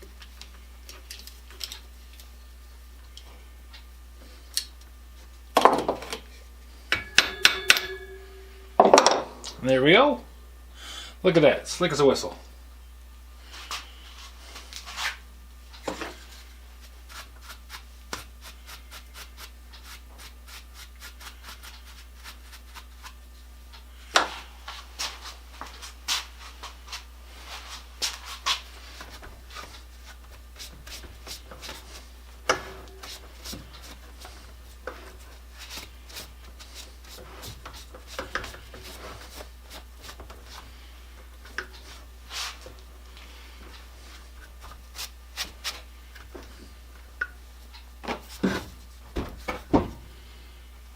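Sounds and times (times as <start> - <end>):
hand sanding scrapes: 16.3 - 23.2, 24.8 - 40.9, 41.8 - 42.6, 44.0 - 45.9.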